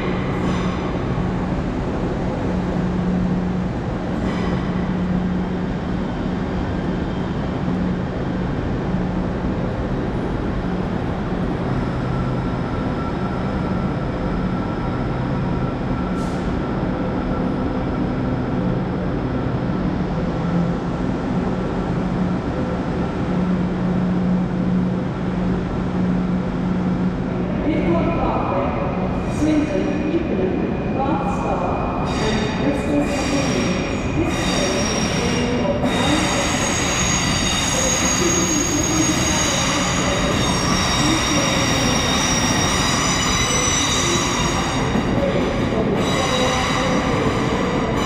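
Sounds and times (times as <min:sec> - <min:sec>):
train moving slowly: 0:00.0 - 0:48.0.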